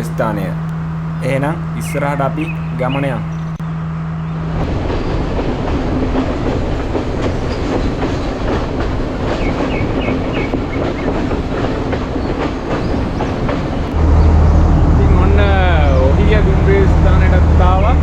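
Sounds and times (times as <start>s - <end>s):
train engine drone: 0.0s - 18.0s
wheels clacking over rail joints: 4.6s - 14.2s.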